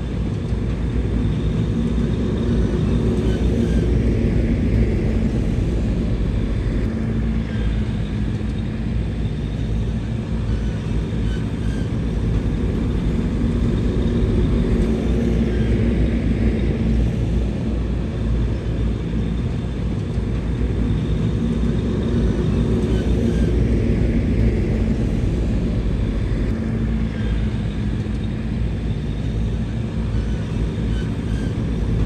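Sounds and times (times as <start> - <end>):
heavy machinery engine rumbling: 0.0 - 32.0.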